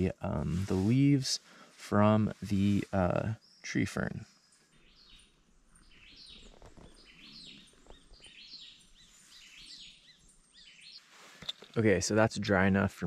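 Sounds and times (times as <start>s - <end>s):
quiet forest ambience: 0.0s - 13.0s
bird whistling song: 4.4s - 11.1s.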